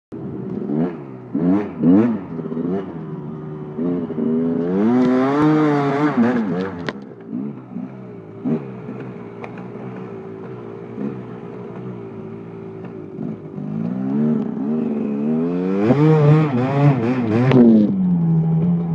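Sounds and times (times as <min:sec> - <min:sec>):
dirt bike engine idling and revving: 0:00.1 - 0:18.9.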